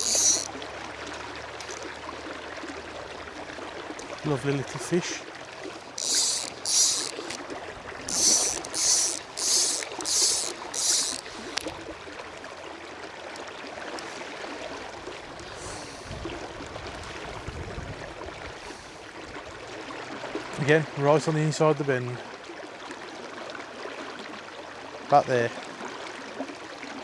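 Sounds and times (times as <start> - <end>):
fishing reel buzzing: 0.0 - 0.6, 1.6 - 1.9, 5.9 - 7.4, 8.0 - 11.8
river water rushing: 0.0 - 15.6
wind rumble on microphone: 15.1 - 18.7.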